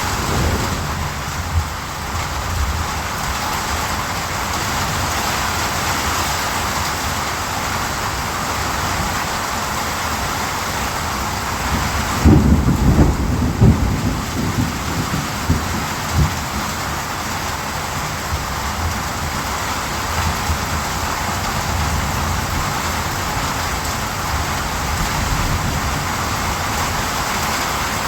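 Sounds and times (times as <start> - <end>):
thunder rumbling: 0.0 - 3.8, 11.7 - 17.0
rain falling: 0.0 - 28.0.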